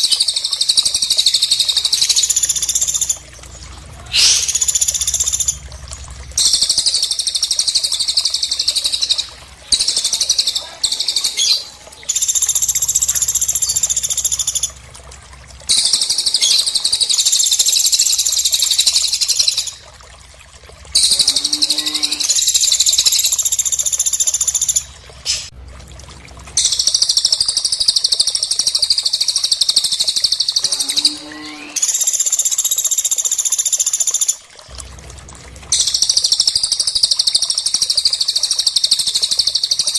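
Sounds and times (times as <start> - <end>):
lower stuttering bird call: 4.0 - 5.6, 30.2 - 32.1
high-pitched bird trilling: 4.1 - 5.5.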